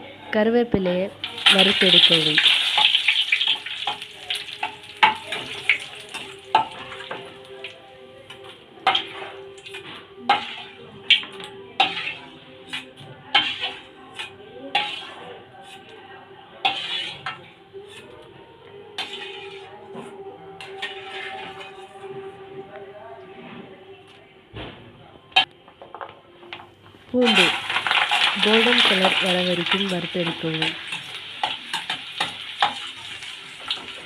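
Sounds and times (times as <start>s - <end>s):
leaves sizzling in hot oil: 1.2s - 7.8s, 8.8s - 15.8s, 16.6s - 17.3s, 19.0s - 19.7s, 20.6s - 21.9s, 27.1s - 34.0s.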